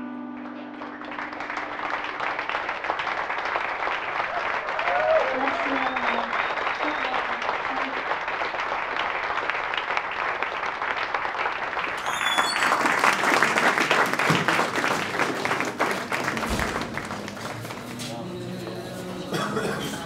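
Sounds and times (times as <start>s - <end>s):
audience applauding: 0.0s - 18.8s.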